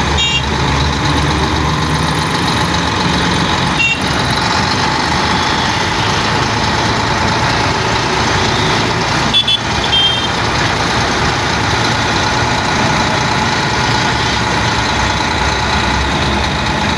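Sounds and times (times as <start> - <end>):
truck diesel engine running: 0.0 - 16.9.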